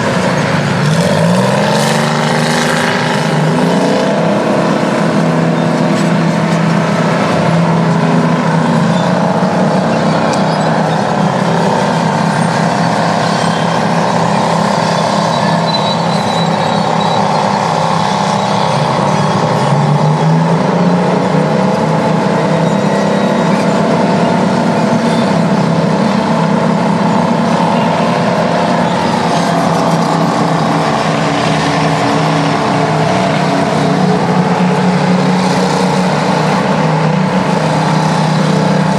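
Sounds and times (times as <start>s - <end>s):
diesel engine under load: 0.0s - 38.9s.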